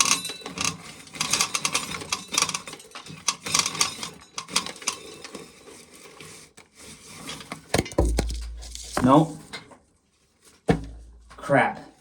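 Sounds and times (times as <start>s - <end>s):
kernels rattling into a pail: 7.8s - 9.2s.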